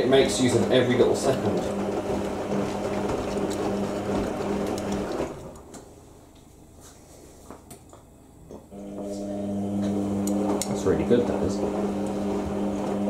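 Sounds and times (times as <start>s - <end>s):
washing machine drum humming: 0.0s - 5.7s, 8.8s - 13.0s.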